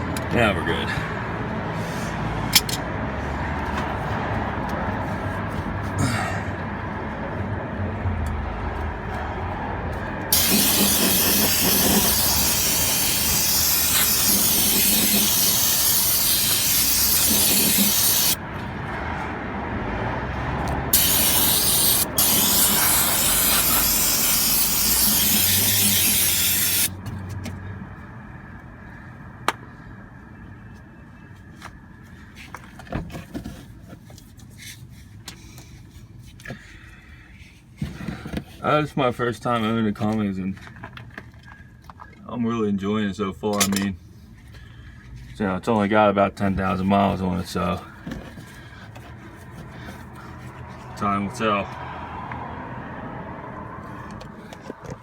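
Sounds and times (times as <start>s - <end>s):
aerosol spray hissing: 10.3s - 18.4s, 20.9s - 26.9s.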